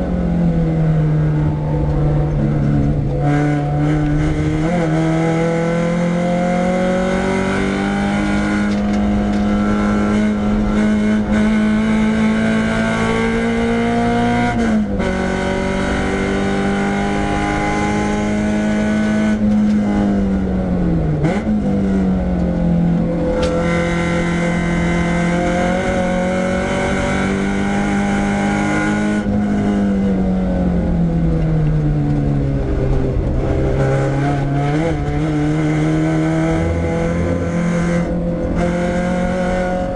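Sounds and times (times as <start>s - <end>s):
car engine revving hard: 1.0s - 30.6s, 33.2s - 39.9s.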